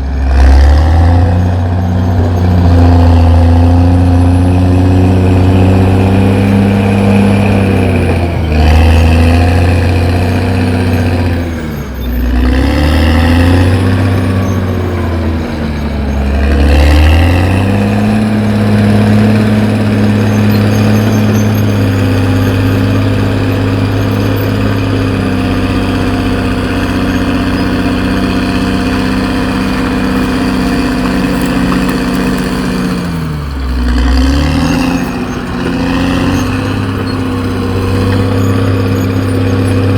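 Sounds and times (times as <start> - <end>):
bulldozer diesel engine labouring: 0.0 - 39.9.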